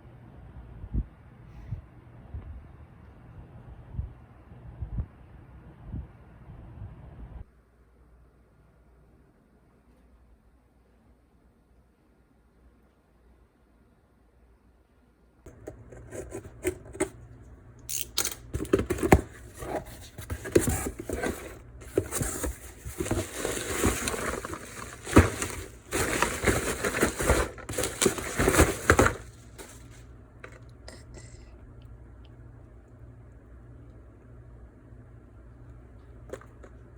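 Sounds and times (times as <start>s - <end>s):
crinkling and rustling: 15.5s - 30.7s.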